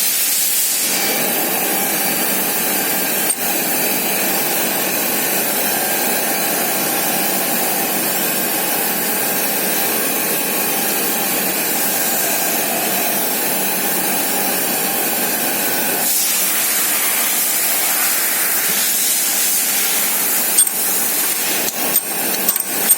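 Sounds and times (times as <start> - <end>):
surface grinder whining hiss: 16.1 - 22.9.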